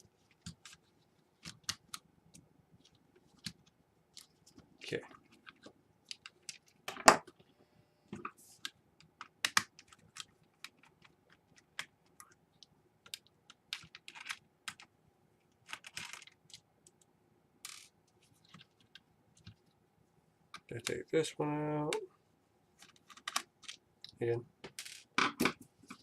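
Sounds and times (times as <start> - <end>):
laptop parts clicking and tapping: 8.6 - 14.9.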